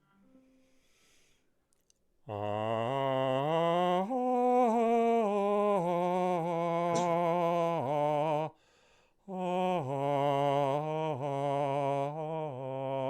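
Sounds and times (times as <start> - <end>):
man singing with vibrato: 2.3 - 8.6, 9.3 - 13.0
man taking a breath: 8.6 - 9.2.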